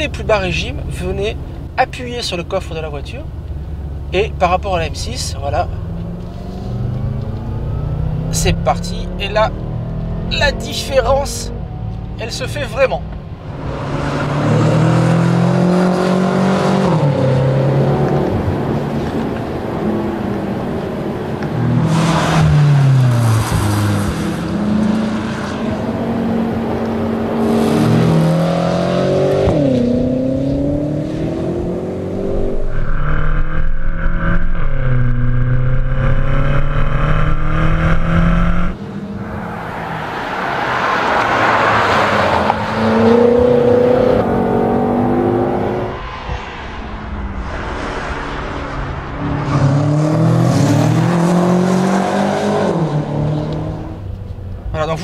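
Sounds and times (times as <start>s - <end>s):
car engine revving: 0.0s - 55.0s
rush of noise: 31.3s - 51.9s.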